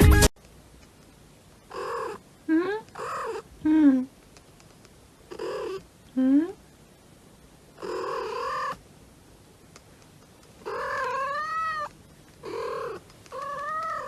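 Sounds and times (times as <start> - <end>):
cat meowing: 7.8 - 8.8, 10.6 - 14.0.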